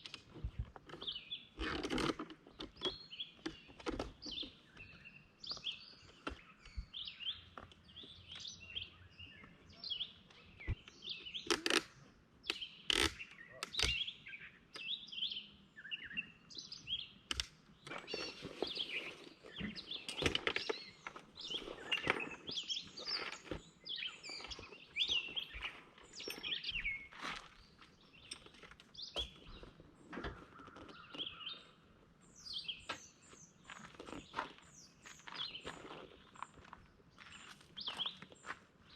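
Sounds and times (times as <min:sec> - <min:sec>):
songbirds chirping: 0:00.0 - 0:38.9
sharp clicks: 0:10.7 - 0:14.0.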